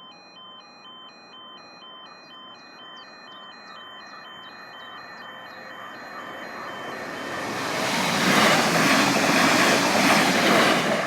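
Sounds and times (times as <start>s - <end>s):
level crossing alarm two-note tone: 0.1s - 8.0s
approaching train rushing: 5.0s - 11.0s.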